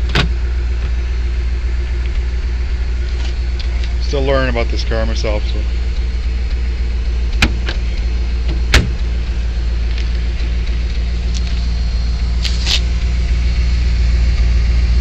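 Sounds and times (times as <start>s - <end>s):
trunk lid shutting: 0.0s - 1.1s, 3.0s - 13.3s
car engine idling: 0.0s - 15.0s.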